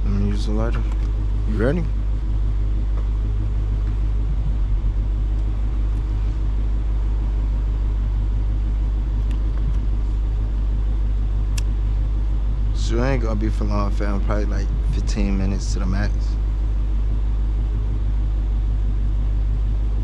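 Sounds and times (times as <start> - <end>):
car engine and road noise droning: 0.0 - 20.0
sharp click: 11.5 - 11.7.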